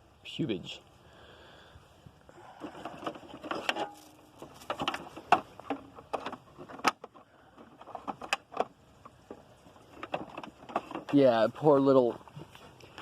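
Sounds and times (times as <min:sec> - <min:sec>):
rustling: 0:02.4 - 0:13.0
clicks and knocks of handling: 0:02.6 - 0:11.4.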